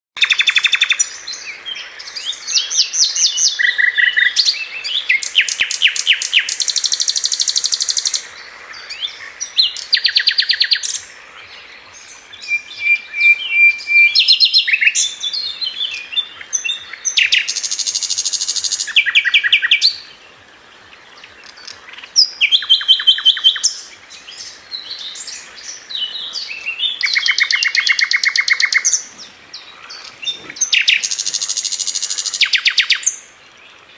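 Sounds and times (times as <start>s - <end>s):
bird singing high trills: 12.0s - 20.1s, 21.9s - 33.3s.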